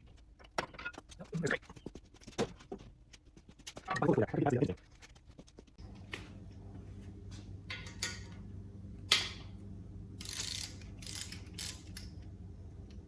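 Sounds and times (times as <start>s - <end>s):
steady low hum: 1.2s - 13.0s
metal tools clicking and scraping: 10.2s - 12.2s.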